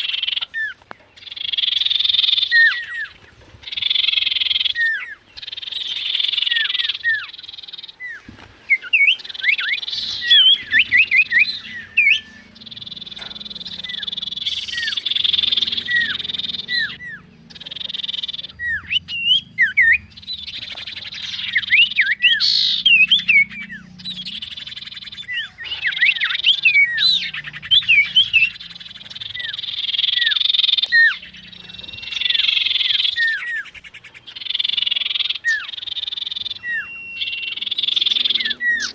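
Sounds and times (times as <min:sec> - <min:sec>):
loud buzzing chorus: 0:09.7 - 0:33.4.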